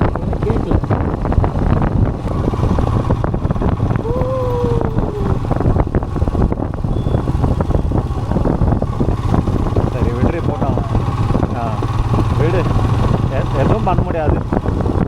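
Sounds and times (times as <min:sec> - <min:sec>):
motorcycle engine running: 0:00.0 - 0:15.0
wind buffeting microphone: 0:00.0 - 0:15.0
falling tone: 0:04.0 - 0:05.7.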